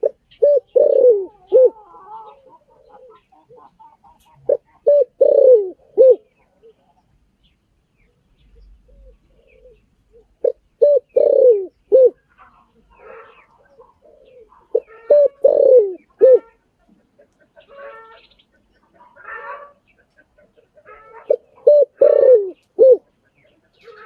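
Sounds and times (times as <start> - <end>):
dove cooing: 0.0 - 7.0, 8.5 - 12.2, 12.9 - 16.6, 20.6 - 24.0
faint bird chirps: 6.0 - 16.6.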